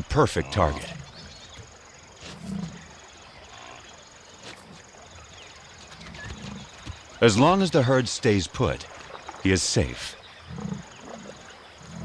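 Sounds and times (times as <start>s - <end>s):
low animal grunts: 2.2s - 2.9s, 10.4s - 12.0s.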